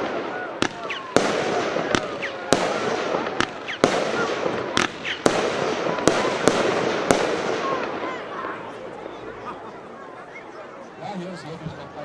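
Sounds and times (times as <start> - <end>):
firework bangs: 0.0 - 8.8.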